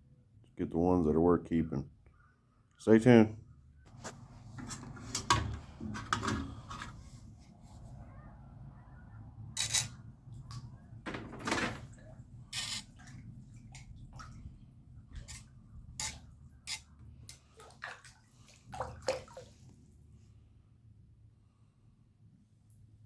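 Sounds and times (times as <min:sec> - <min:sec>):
water splashing and dripping: 0:10.3 - 0:19.7.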